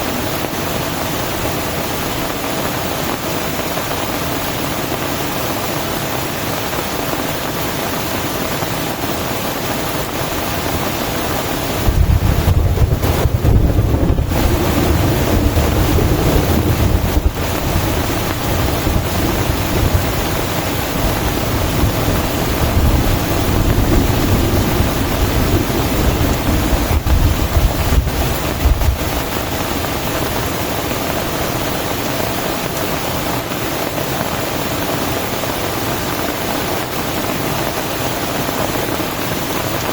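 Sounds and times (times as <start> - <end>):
heavy rain: 0.0 - 39.9
long low rumble: 11.8 - 30.3.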